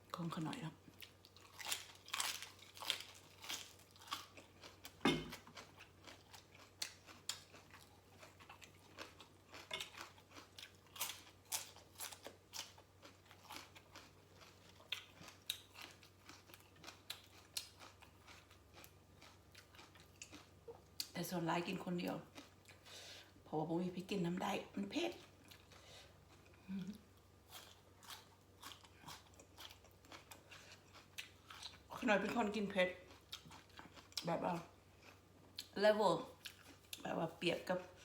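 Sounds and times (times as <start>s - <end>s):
crunchy chewing: 0.9s - 21.1s, 25.2s - 31.9s.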